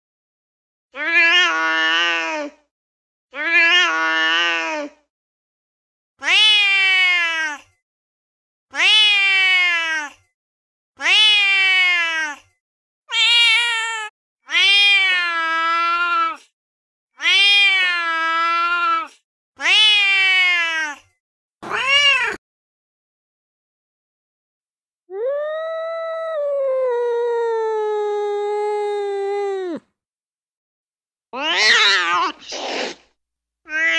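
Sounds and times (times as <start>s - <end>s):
cat meowing: 6.2s - 7.6s, 8.7s - 10.1s, 11.0s - 12.4s, 13.1s - 16.4s, 17.2s - 21.0s, 21.6s - 22.4s, 31.4s - 32.8s, 33.7s - 33.9s.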